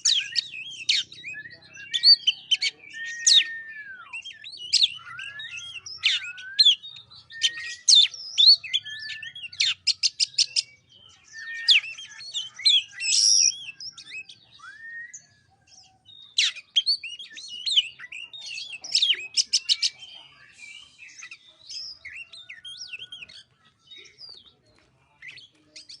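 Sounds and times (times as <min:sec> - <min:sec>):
songbird singing: 0:00.0 - 0:26.0.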